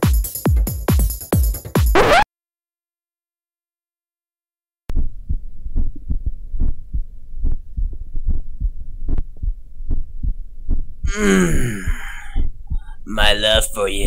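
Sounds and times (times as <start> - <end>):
low muffled thumping: 4.9 - 11.1, 11.9 - 13.0.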